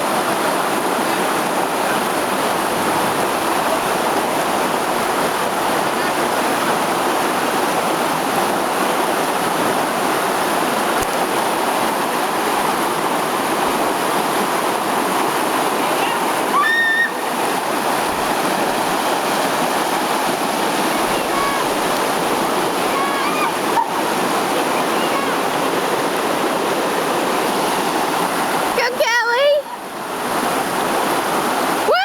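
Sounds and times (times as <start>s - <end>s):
flowing river water: 0.0s - 32.0s.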